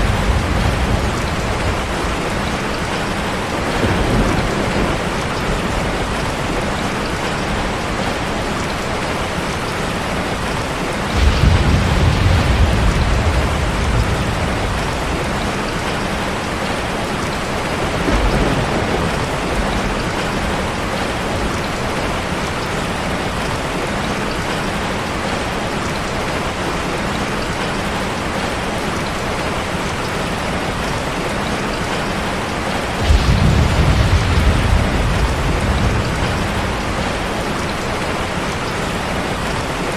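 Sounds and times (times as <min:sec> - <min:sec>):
thunder rumbling: 0:00.0 - 0:23.0, 0:32.8 - 0:39.9
rain falling: 0:00.0 - 0:39.9.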